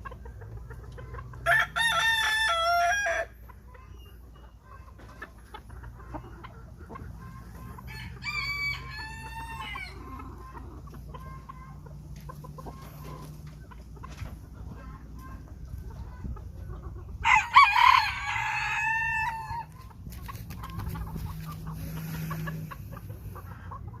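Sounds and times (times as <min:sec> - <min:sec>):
chicken clucking: 0:00.0 - 0:24.0
rooster crowing: 0:01.4 - 0:03.3, 0:07.9 - 0:10.0, 0:17.2 - 0:19.7.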